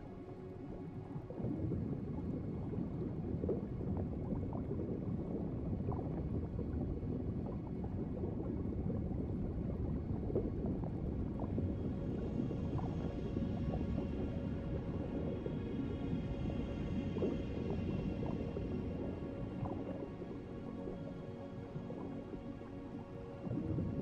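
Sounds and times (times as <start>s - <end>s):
underwater bubbling and gurgling: 0.0s - 24.0s.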